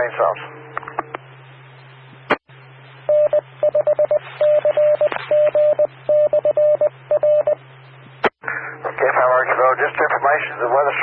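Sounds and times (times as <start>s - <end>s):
radio channel hum and hiss: 0.0s - 11.0s
morse code tone: 3.1s - 7.6s.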